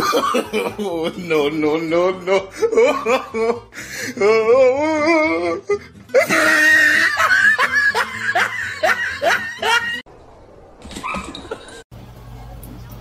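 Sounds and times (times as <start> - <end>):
music: 0.0 - 10.0
person laughing: 0.0 - 10.0.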